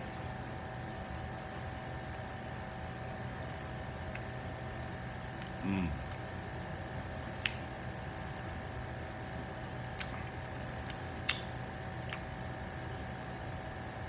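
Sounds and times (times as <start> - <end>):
steady background hum: 0.0 - 14.0
mouth clicks while chewing: 4.0 - 6.3, 7.3 - 8.7, 9.8 - 12.4.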